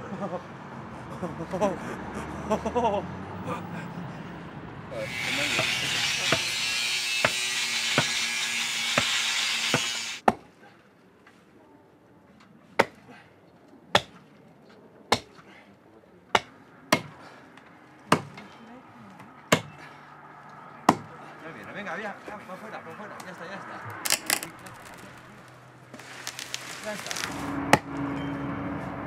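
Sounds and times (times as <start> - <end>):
hatchet chopping wood: 7.2 - 7.4, 8.0 - 8.2, 8.9 - 10.5, 12.8 - 13.0, 13.9 - 14.2, 15.1 - 15.4, 16.3 - 17.3, 18.1 - 18.4, 19.5 - 19.8, 20.9 - 21.1.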